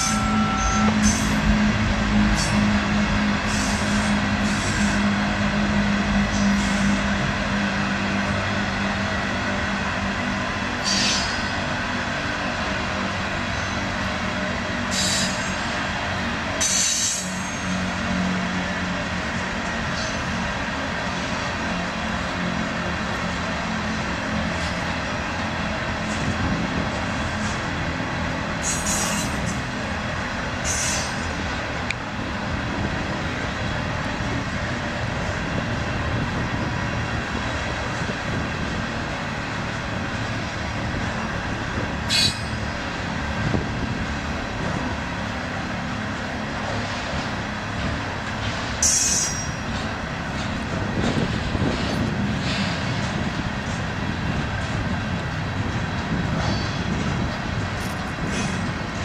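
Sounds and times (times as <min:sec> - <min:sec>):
high wheel squeals: 0:00.0 - 0:01.6, 0:10.8 - 0:11.6, 0:14.9 - 0:15.7, 0:28.6 - 0:29.6, 0:30.6 - 0:31.4, 0:42.1 - 0:42.8, 0:48.7 - 0:49.9, 0:56.4 - 0:57.0
steel wheels rumbling on rail: 0:00.0 - 0:59.0.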